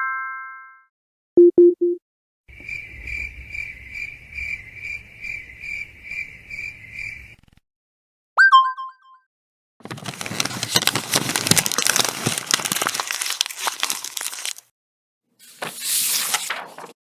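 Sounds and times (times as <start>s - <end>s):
crinkling crackle with sharp clicks: 9.8s - 14.7s.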